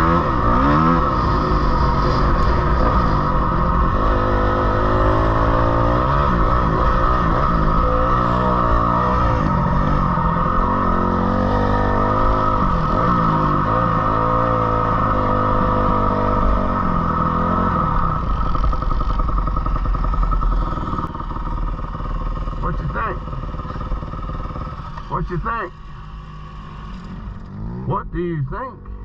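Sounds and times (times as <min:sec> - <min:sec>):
dirt bike engine revving: 0:00.0 - 0:28.2.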